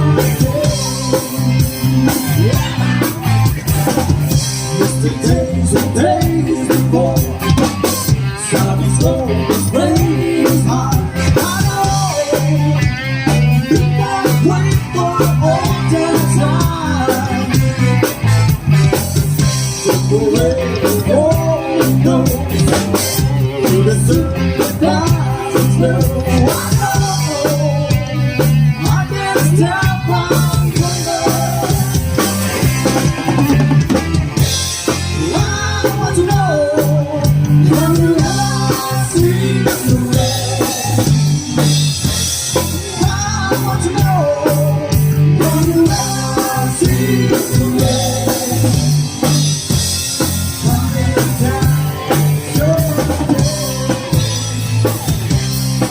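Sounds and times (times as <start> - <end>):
live rock band: 0.0 - 55.9.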